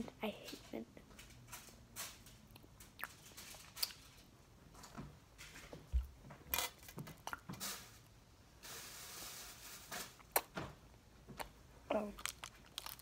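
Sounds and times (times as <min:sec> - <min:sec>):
faint chewing of gummy candy: 0:11.3 - 0:13.0.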